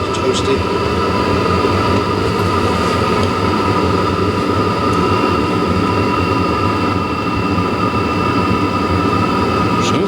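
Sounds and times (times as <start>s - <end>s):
blower fan whine: 0.0s - 10.0s
heater burner rumble: 0.0s - 10.0s.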